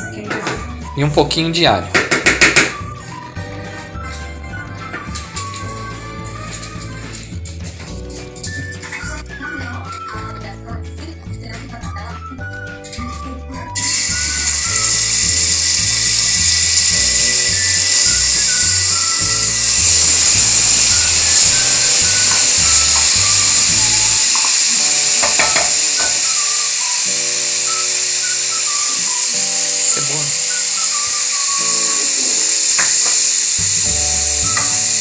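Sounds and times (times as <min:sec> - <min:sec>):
background music: 0:00.0 - 0:35.0
garlic sizzling in hot oil: 0:13.8 - 0:35.0.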